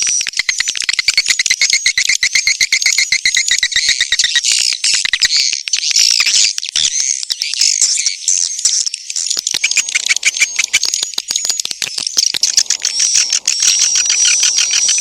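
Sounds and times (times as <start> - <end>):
swiftlet twittering chirps: 9.2 - 15.0
swiftlet dry clicks: 9.6 - 15.0.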